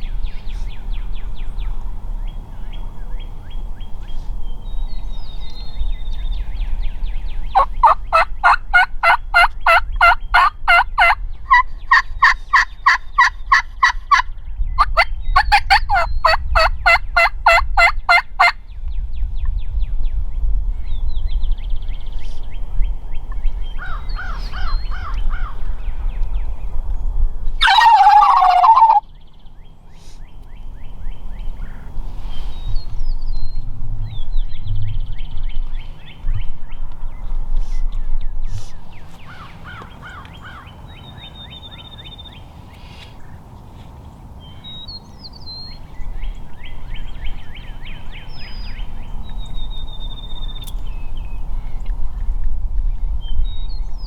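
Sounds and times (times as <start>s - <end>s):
turkey yelping: 7.6s - 14.2s, 14.8s - 18.5s, 27.6s - 29.0s
turkey gobble: 7.6s - 18.5s, 27.6s - 29.0s.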